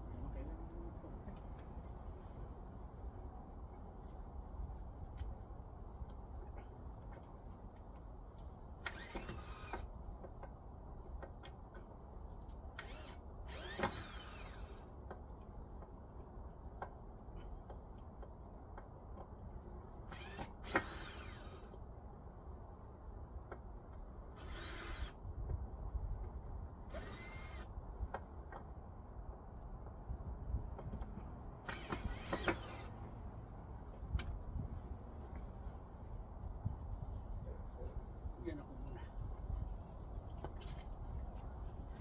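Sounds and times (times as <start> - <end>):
power drill driving screws: 8.8 - 9.9, 12.8 - 14.9, 20.1 - 21.8, 24.3 - 25.2, 26.9 - 27.7, 31.7 - 32.9.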